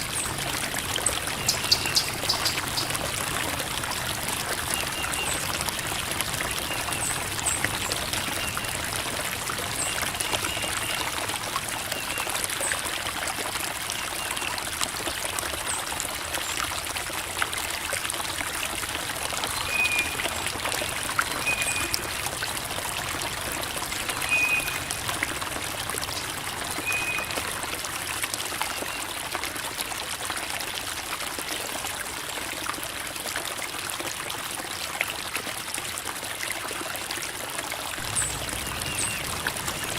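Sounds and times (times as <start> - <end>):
creek water babbling over rocks: 0.0 - 39.9.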